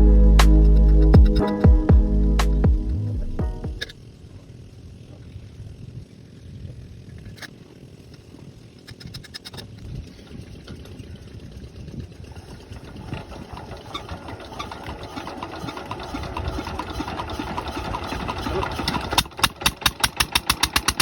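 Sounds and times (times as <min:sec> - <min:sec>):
diesel engine knocking: 0:13.6 - 0:21.0.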